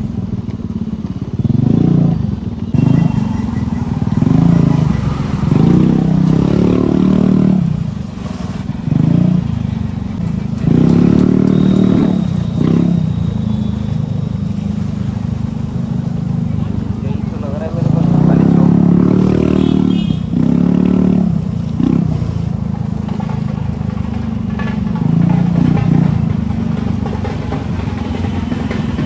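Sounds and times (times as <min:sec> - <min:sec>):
low riding rumble: 0:00.0 - 0:29.0
motorcycle engine revving: 0:00.0 - 0:29.0.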